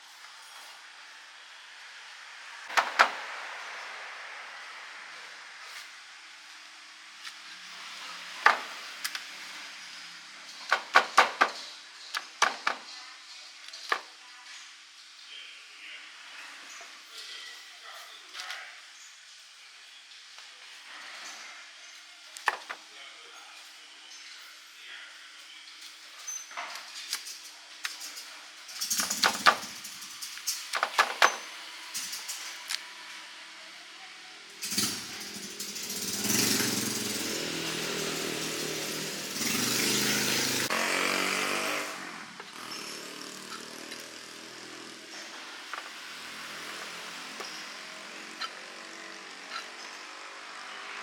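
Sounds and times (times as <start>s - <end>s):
clatter bursts: 10.6s - 12.8s, 28.0s - 32.6s, 34.6s - 49.6s
hard objects knocking: 10.7s - 12.9s, 30.7s - 31.5s
cooking gear clinking and knocking: 26.4s - 32.7s.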